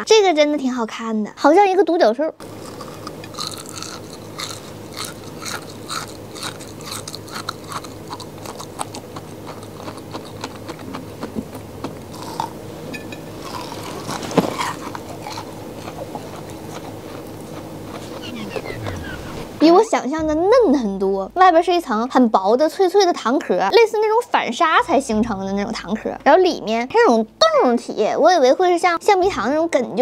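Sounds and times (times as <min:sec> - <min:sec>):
candy crust crackling: 0:02.4 - 0:11.4, 0:13.4 - 0:18.2
soft chewing: 0:02.4 - 0:12.6, 0:13.4 - 0:19.2.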